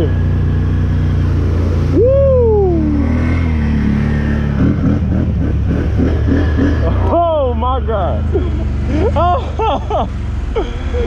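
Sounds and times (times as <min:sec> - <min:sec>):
engine running steadily: 0:00.0 - 0:11.0
person shouting: 0:01.9 - 0:03.2.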